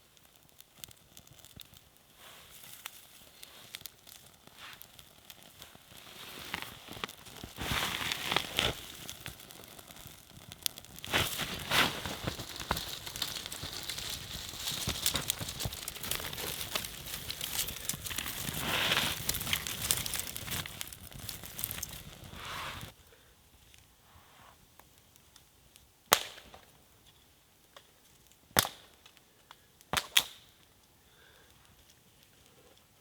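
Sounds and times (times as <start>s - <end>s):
material crinkling and rustling: 2.7s - 22.9s.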